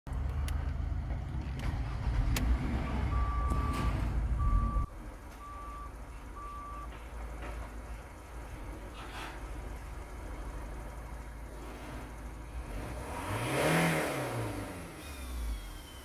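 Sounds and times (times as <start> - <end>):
diesel engine running: 0.1 - 16.0
short electronic beeps: 2.9 - 6.9.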